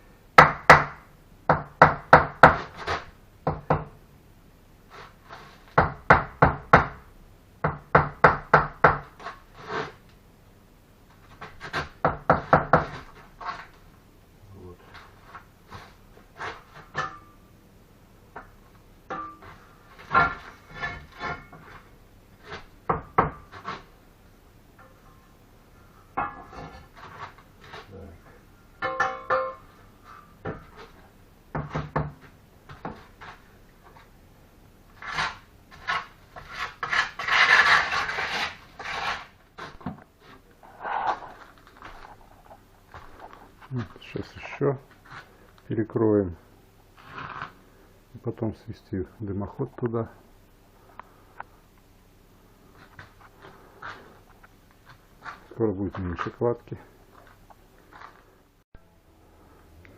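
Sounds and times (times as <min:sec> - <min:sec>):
trowel scraping mortar on brick: 0:09.1 - 0:10.0, 0:14.9 - 0:17.1, 0:35.0 - 0:42.0, 0:47.0 - 0:47.6.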